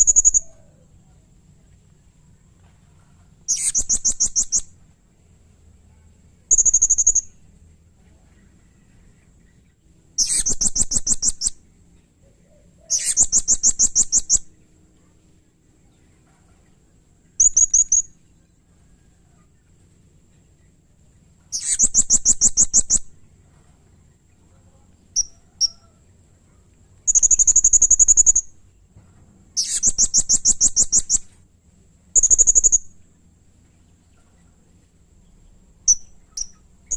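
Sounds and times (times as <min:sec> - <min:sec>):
parrot trilled chatters: 0:03.5 - 0:04.6, 0:10.2 - 0:11.6, 0:12.8 - 0:14.4, 0:21.5 - 0:23.0, 0:29.6 - 0:31.2.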